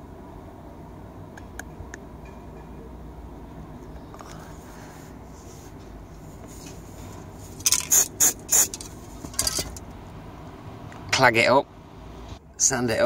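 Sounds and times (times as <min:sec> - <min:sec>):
low steady hum: 0:00.0 - 0:13.0
paint spray hissing: 0:07.7 - 0:08.8.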